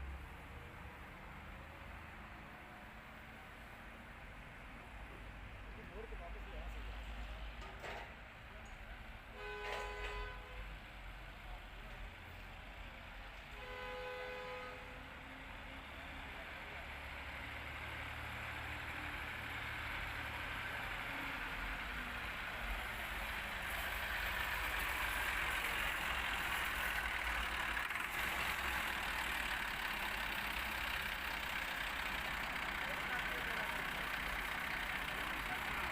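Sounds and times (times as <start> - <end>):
vehicle engine and road noise: 0.0 - 35.9
vehicle horn toot: 9.3 - 10.7, 13.5 - 15.1.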